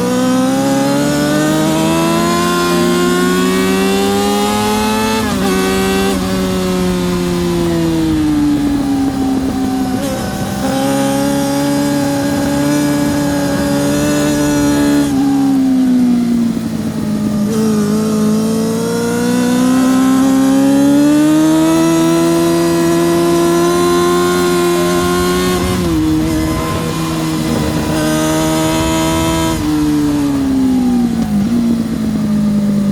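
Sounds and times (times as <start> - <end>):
motorcycle engine revving hard: 0.0 - 32.9.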